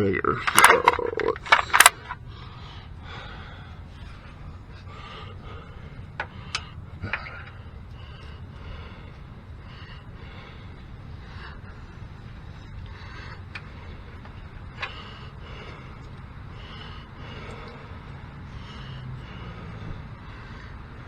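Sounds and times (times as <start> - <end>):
low background hum: 0.0 - 21.0
hand tools clicking: 0.4 - 2.2
faint breathing: 1.4 - 21.0.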